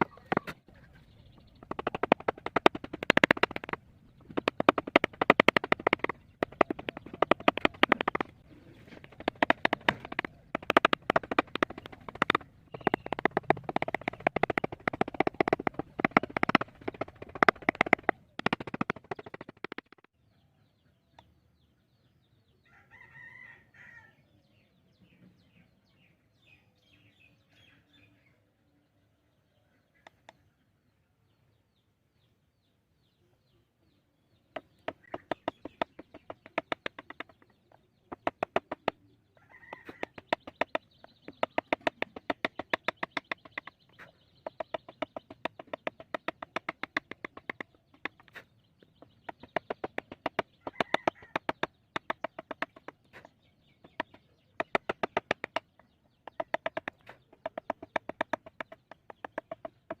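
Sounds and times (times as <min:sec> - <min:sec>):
mallet tapping chisel into wood: 0:04.4 - 0:08.3, 0:09.1 - 0:20.0.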